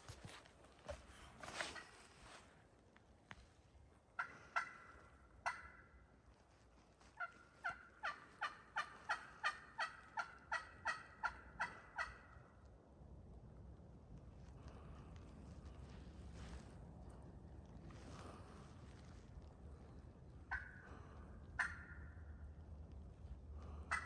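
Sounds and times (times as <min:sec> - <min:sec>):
turkey yelping: 0:04.2 - 0:05.9, 0:07.2 - 0:12.4, 0:20.5 - 0:20.8, 0:21.5 - 0:22.2.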